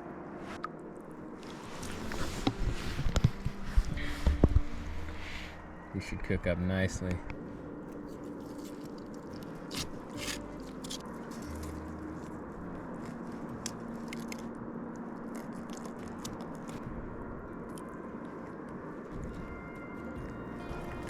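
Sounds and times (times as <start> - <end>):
wet crunching and scraping: 7.7 - 16.9.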